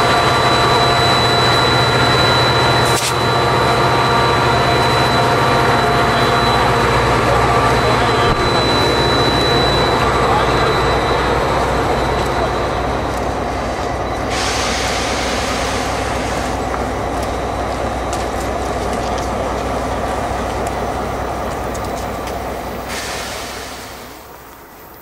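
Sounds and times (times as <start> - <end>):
diesel train passing rumble: 0.0 - 25.0.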